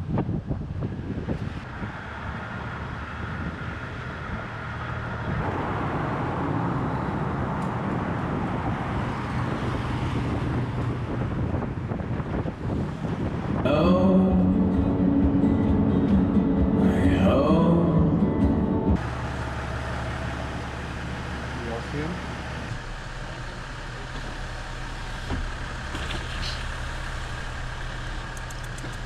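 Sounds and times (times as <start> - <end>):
car tyre and wind noise: 0.0 - 16.8, 18.5 - 29.0.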